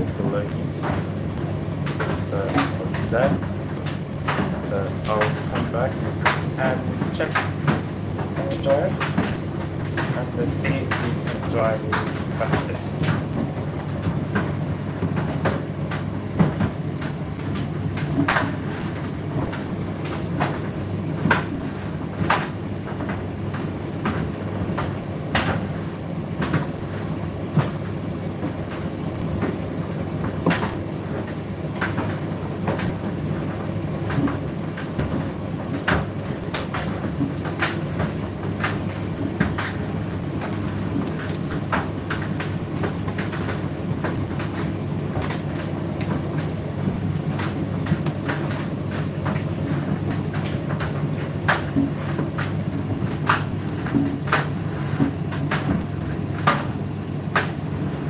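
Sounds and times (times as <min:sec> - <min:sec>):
tumble dryer motor hum: 0:00.0 - 0:58.0.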